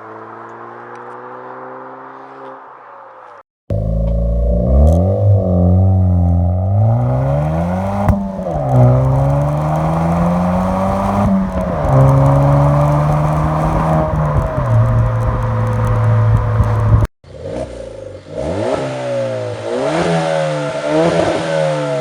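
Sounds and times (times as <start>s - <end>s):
car engine revving: 3.7s - 22.0s.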